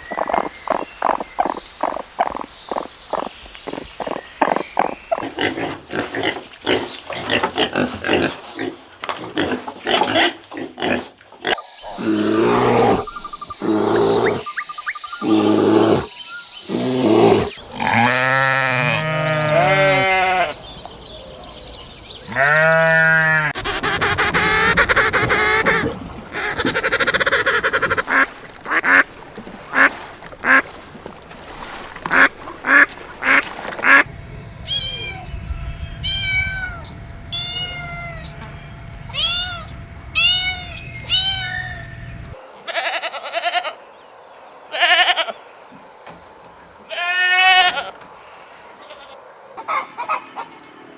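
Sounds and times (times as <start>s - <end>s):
farm animal calls: 0.0s - 8.7s, 9.6s - 20.6s, 22.2s - 28.2s, 32.1s - 43.9s, 46.8s - 48.0s.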